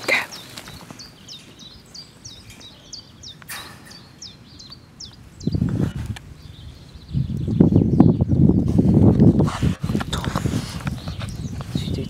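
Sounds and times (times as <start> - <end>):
small bird chirping: 0.0 - 8.7
faint outdoor background noise: 0.0 - 12.0
low rustling rumble: 0.6 - 12.0.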